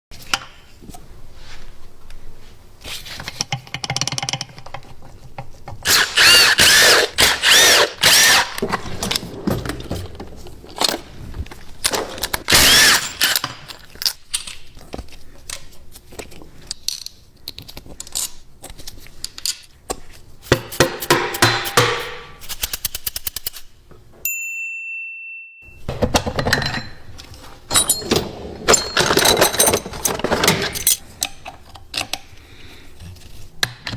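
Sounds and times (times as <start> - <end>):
tools clanking on metal: 25.9 - 32.3.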